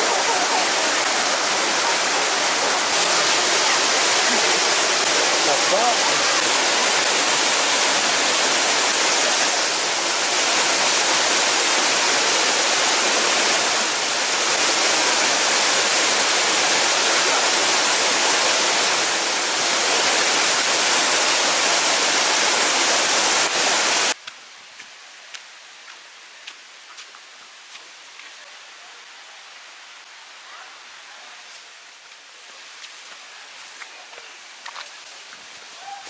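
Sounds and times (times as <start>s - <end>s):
river water rushing: 0.0s - 24.2s.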